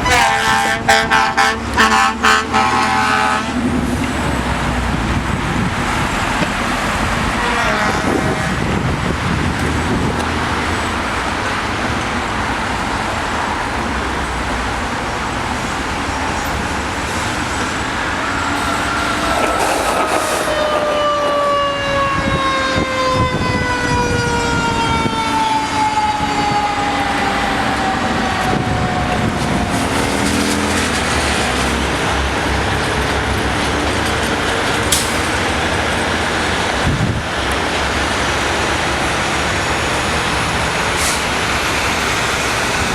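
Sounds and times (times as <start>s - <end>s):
freeway traffic noise: 0.0s - 42.9s
siren winding down: 17.9s - 30.4s.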